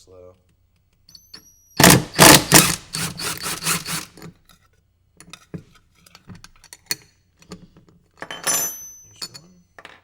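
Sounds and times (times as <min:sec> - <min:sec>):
drill rasping grind: 0:01.8 - 0:04.2.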